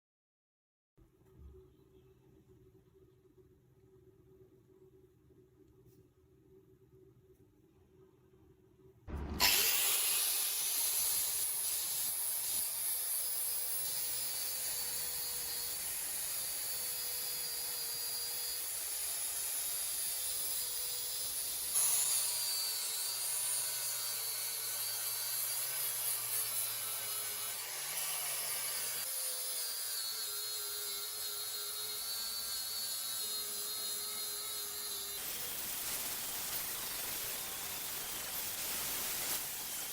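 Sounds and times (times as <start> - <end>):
electric power tool grinding: 9.1 - 39.9.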